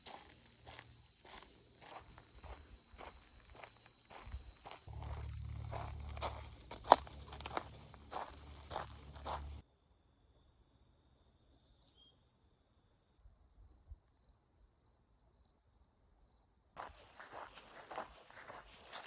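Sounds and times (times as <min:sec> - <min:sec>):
crunching footsteps: 0:00.0 - 0:09.6, 0:16.8 - 0:19.0
cricket chirping: 0:00.0 - 0:19.0
high insect note: 0:02.4 - 0:09.6.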